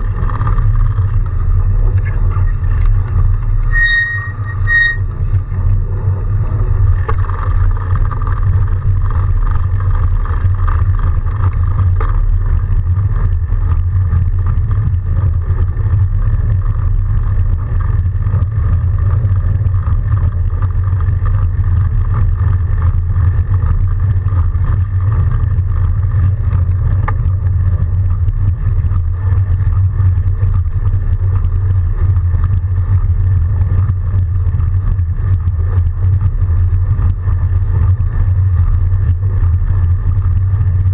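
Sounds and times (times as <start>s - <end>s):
bicycle tyres on snow: 0.0s - 40.9s
wind noise on microphone: 0.0s - 40.9s.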